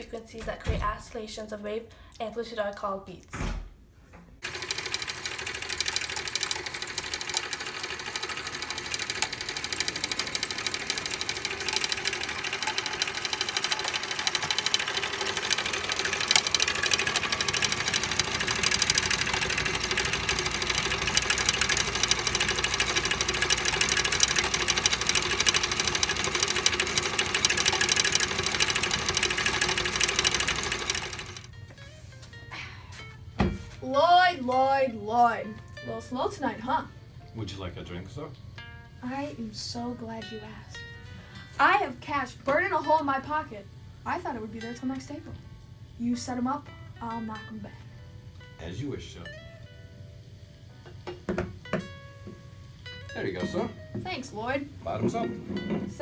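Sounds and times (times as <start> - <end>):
small motor clattering: 4.4 - 31.5.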